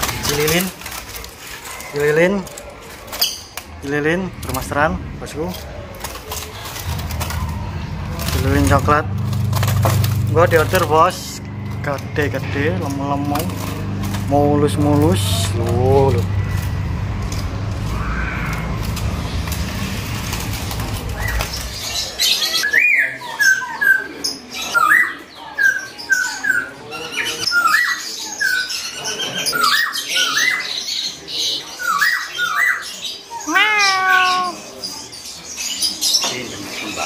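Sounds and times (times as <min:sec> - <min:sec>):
caged birds chirping: 0:00.0 - 0:37.0
low rumble: 0:02.4 - 0:22.7.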